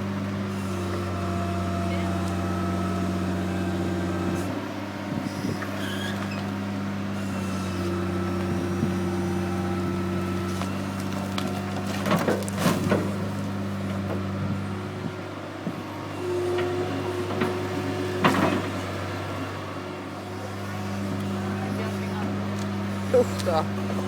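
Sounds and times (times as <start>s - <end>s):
heavy diesel engine running: 6.5s - 24.0s.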